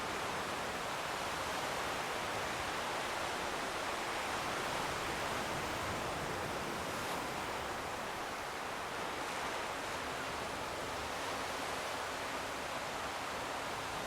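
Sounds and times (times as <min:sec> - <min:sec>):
distant sea surf: 0:00.0 - 0:14.0.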